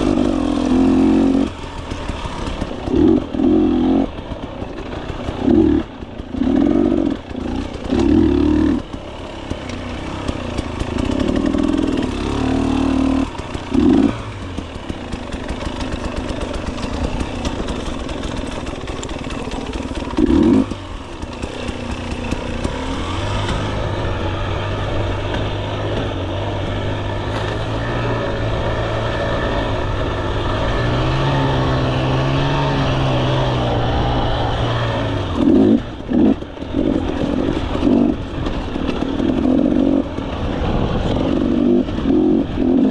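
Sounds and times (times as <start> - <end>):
two-stroke motorcycle engine revving: 0.0 - 42.9.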